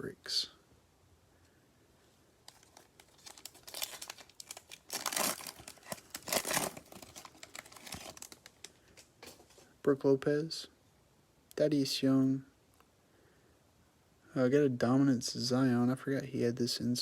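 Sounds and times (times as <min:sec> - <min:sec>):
wrapper tearing and crinkling: 0:02.4 - 0:09.1.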